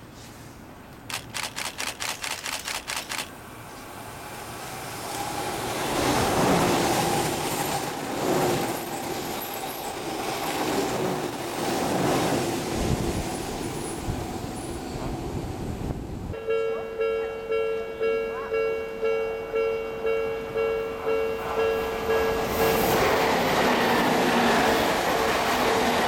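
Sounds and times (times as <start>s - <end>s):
train wheels rumbling on rail: 0.9s - 16.4s, 21.4s - 26.0s
train whine: 3.0s - 26.0s.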